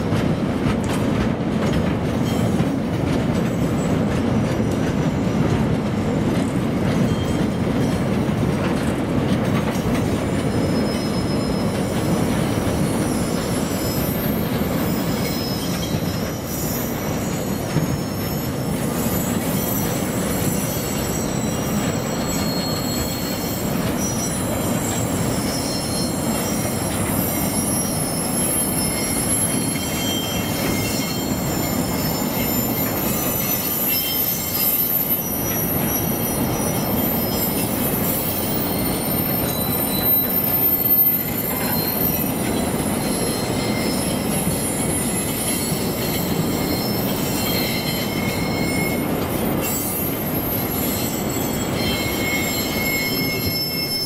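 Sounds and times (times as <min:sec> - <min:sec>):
wagon wheels rumbling on rail: 0:00.0 - 0:54.0
high-pitched wheel squeals: 0:06.1 - 0:54.0.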